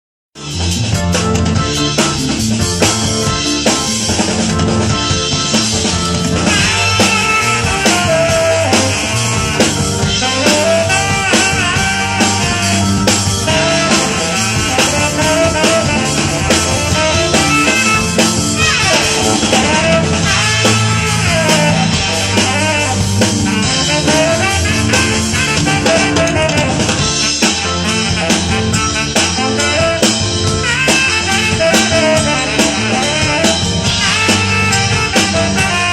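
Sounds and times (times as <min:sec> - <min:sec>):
band playing: 0:00.4 - 0:35.9
steady drum beat: 0:00.4 - 0:35.9.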